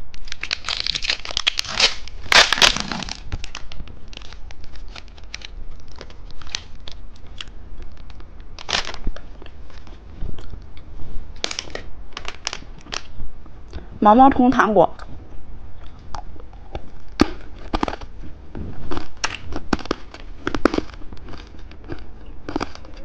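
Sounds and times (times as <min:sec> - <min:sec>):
plastic wrapper crinkling and tearing: 0:00.0 - 0:10.5, 0:11.4 - 0:13.1, 0:18.9 - 0:23.0.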